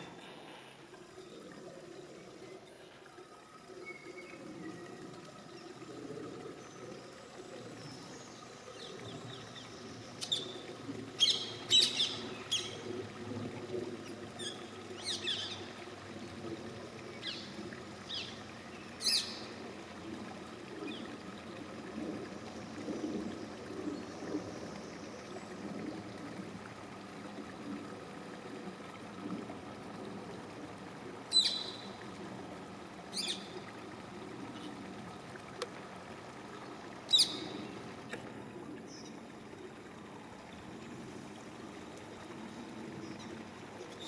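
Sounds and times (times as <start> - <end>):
trickle of flowing water: 0.0 - 44.0.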